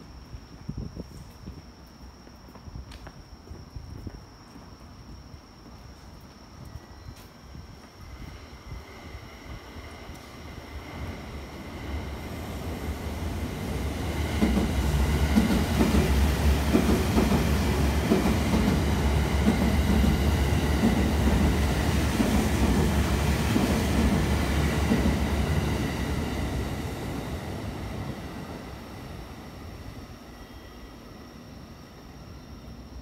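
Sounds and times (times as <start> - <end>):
electric train rumbling past: 7.7 - 33.0.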